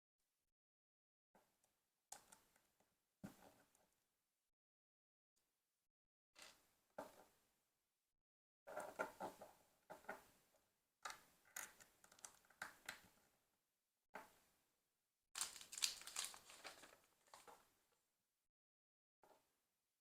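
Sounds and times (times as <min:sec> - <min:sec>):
packaging crinkling: 0:15.4 - 0:17.6.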